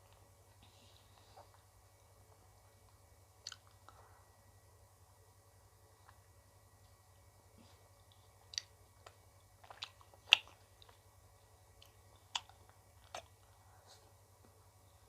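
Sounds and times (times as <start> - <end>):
faint low hum: 0.0 - 15.0
person eating ice cream: 3.4 - 4.0, 8.0 - 13.6.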